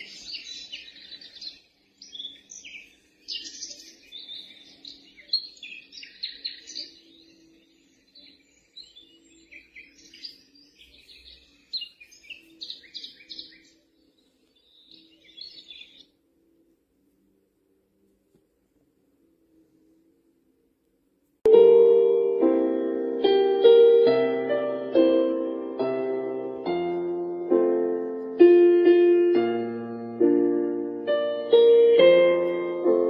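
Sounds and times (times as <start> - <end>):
recorded birdsong through small speaker: 0.0 - 20.9.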